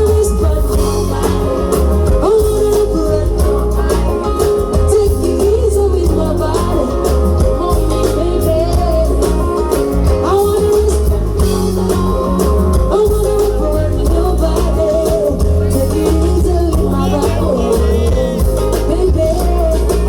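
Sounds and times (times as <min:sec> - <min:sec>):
music with singing and heavy bass: 0:00.0 - 0:20.0.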